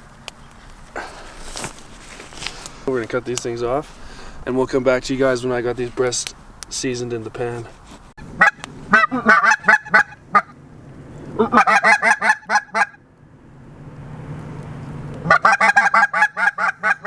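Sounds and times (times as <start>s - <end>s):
geese honking: 8.3s - 10.6s, 11.3s - 13.0s, 15.2s - 17.0s.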